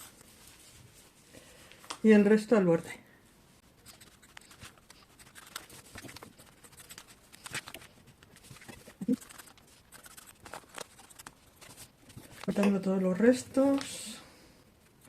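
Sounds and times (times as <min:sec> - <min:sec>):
cloth rustling: 0:00.0 - 0:02.0.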